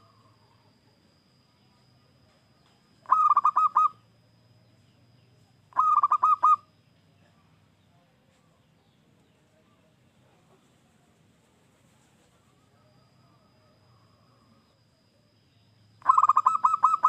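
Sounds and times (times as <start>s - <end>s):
dove cooing: 3.0s - 4.0s, 5.7s - 6.7s, 16.0s - 17.0s.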